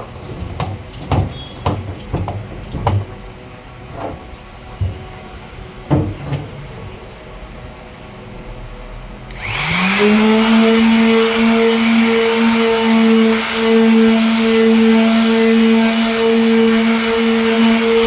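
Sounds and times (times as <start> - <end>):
electric sander motor whining: 9.3 - 18.0.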